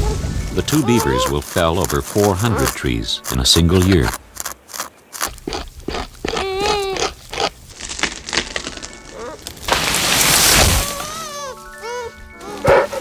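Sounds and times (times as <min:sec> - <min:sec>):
beaver gnawing wood: 0:00.8 - 0:09.5.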